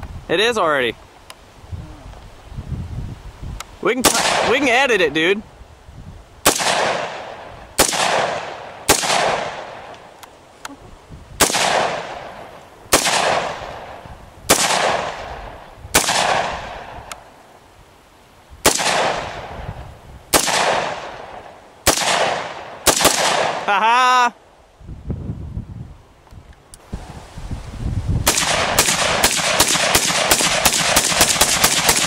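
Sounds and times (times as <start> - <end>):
gunshots echoing: 4.0 - 4.9, 6.4 - 10.0, 11.4 - 16.9, 18.6 - 19.5, 20.3 - 23.7, 28.3 - 32.0.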